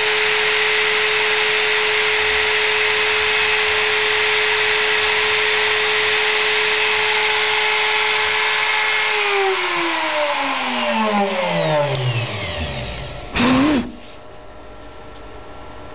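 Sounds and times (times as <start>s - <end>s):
spindle motor whining: 0.0s - 14.1s
loud burst of noise: 9.0s - 14.0s.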